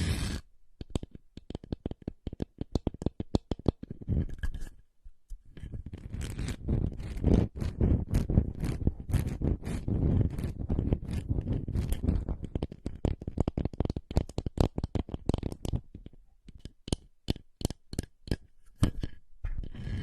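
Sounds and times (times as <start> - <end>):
scratching and crackling: 0.0 - 4.8, 5.6 - 20.0.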